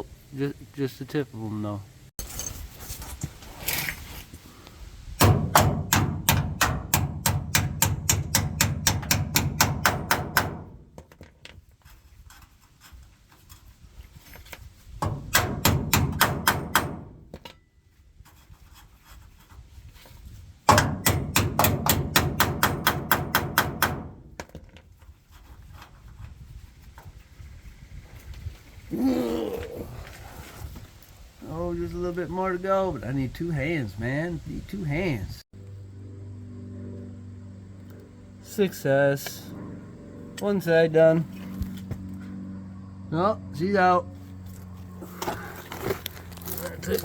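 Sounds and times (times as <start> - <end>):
hammer blows on metal bolts: 5.2 - 10.8, 15.0 - 17.6, 20.7 - 24.2.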